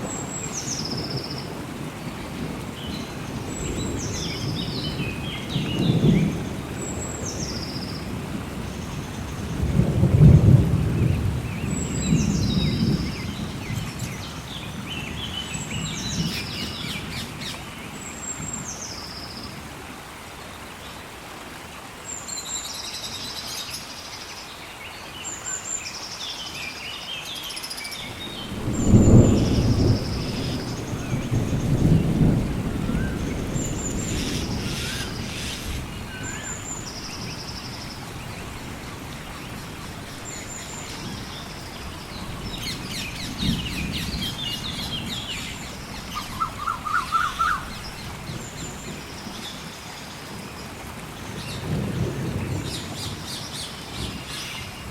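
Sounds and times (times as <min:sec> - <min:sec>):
rolling thunder: 0:00.0 - 0:17.5, 0:28.0 - 0:49.5
steady rain: 0:00.0 - 0:54.9
bird calling: 0:42.6 - 0:48.1.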